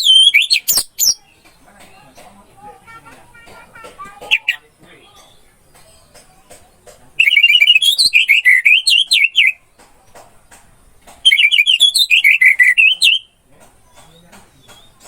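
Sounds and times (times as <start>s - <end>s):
thrush singing whistled notes: 0.0s - 1.4s, 7.2s - 9.6s, 11.2s - 13.4s.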